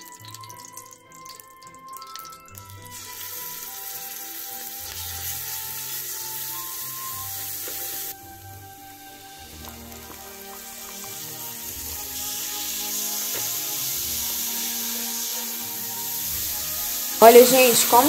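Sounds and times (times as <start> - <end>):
seasoning sizzling in oil: 0.0 - 18.0
spatula stirring in pan: 8.9 - 17.2.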